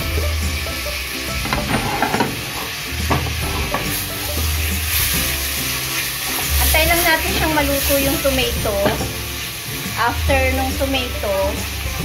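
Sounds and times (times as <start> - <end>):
vegetables sizzling in oil: 0.0 - 12.0
knocks against metal pot: 1.4 - 4.5, 8.8 - 9.2
utensil scraping a pot: 1.4 - 5.1.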